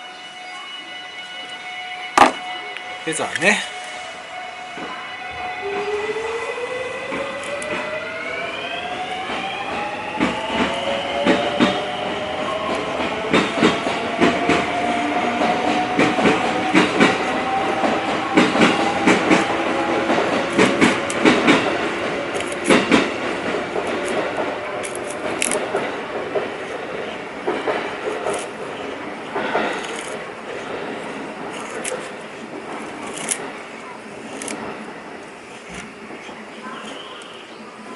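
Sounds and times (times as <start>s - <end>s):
electric train motor whine: 0.0s - 26.0s
wheels clacking over rails: 7.0s - 37.4s.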